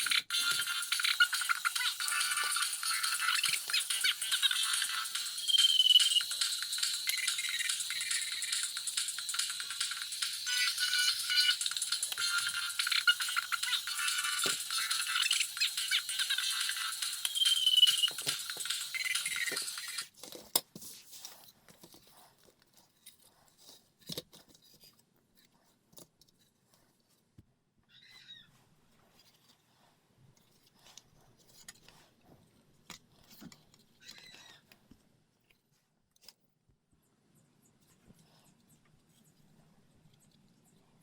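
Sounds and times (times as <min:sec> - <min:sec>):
music: 0:00.0 - 0:20.1.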